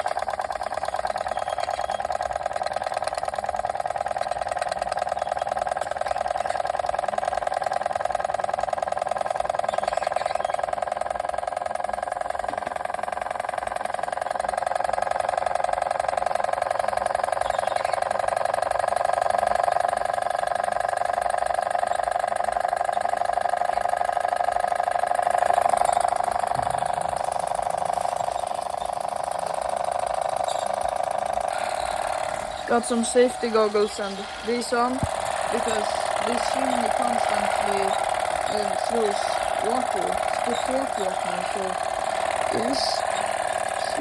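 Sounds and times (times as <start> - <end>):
rapid steam exhaust puffing: 0.0 - 44.0
steam engine running: 0.0 - 44.0.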